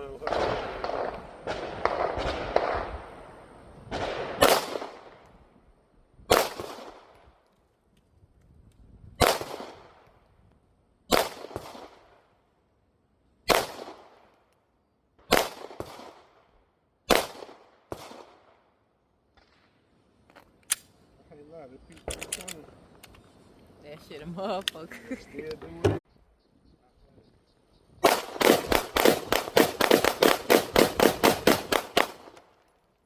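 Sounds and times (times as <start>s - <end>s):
single gunshots echoing: 0.2s - 3.0s, 3.9s - 5.2s, 6.3s - 7.1s, 9.2s - 10.0s, 11.1s - 12.1s, 13.5s - 14.2s, 17.1s - 18.4s.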